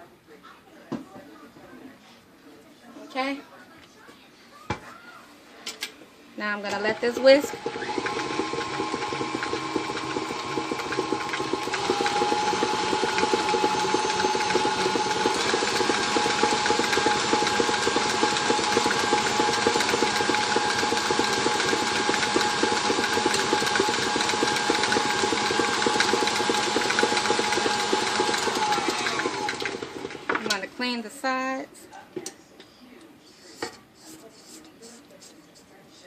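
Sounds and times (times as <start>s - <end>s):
electric mixer motor hum: 6.9s - 30.5s
whisk rattling in a bowl: 7.0s - 30.6s.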